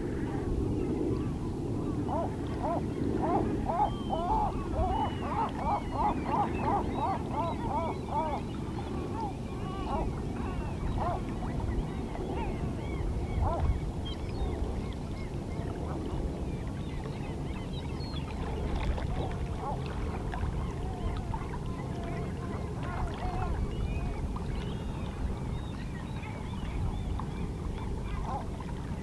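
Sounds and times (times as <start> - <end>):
seabirds calling: 1.1 - 14.2.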